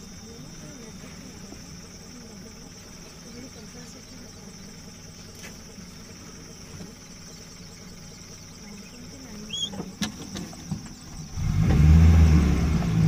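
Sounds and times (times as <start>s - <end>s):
faint hum: 0.0s - 10.2s
vehicle engine running: 0.0s - 13.0s.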